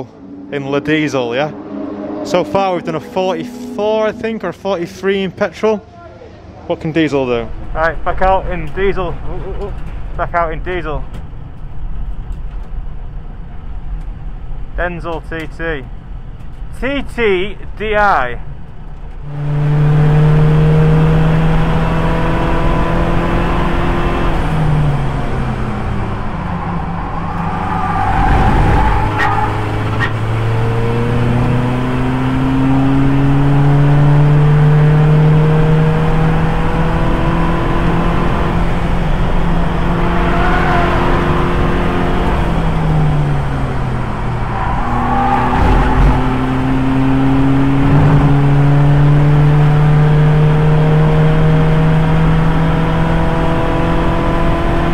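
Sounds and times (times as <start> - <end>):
race car engine shifting gears: 18.6 - 54.9.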